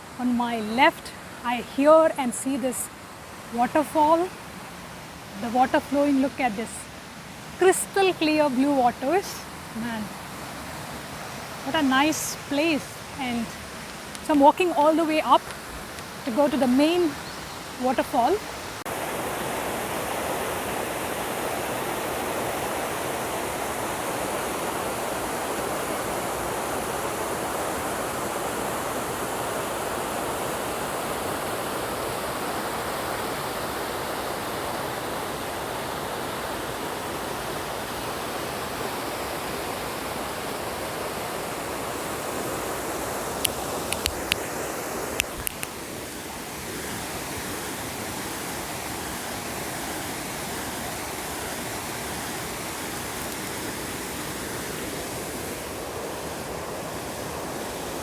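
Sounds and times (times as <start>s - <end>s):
waterfall and rushing river water: 0.0s - 58.0s
sharp clicks: 43.9s - 44.4s, 45.2s - 45.7s.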